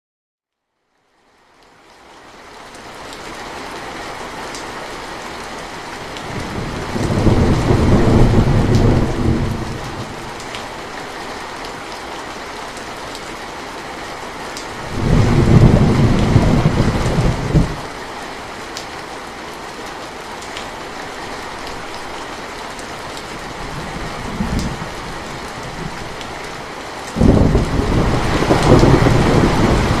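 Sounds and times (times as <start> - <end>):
steady rain: 0.7 - 30.0
thunder rolling: 6.3 - 10.3, 14.8 - 17.8, 23.5 - 26.2, 27.2 - 30.0.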